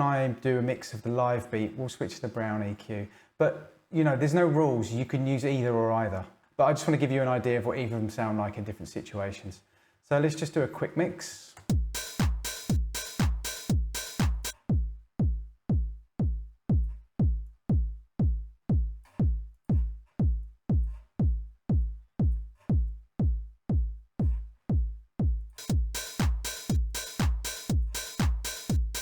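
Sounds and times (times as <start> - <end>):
bright high percussion: 11.7 - 14.6, 25.6 - 29.0
drum machine kick: 11.7 - 29.0.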